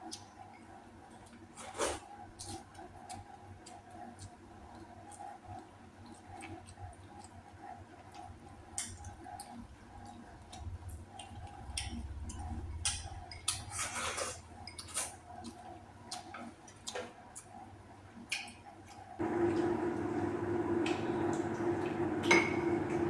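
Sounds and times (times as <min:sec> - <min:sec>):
person chewing with wet mouth clicks: 0:00.0 - 0:00.3, 0:02.4 - 0:13.7, 0:14.7 - 0:17.6.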